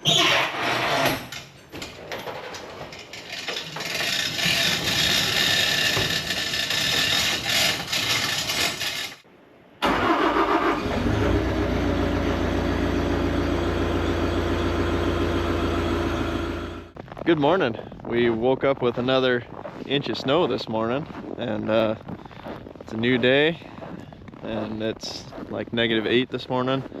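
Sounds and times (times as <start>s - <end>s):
engine starting and idling: 9.8s - 16.9s.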